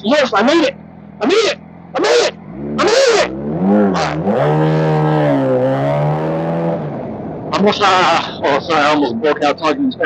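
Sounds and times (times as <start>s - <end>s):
motorcycle engine accelerating: 0.7s - 7.5s.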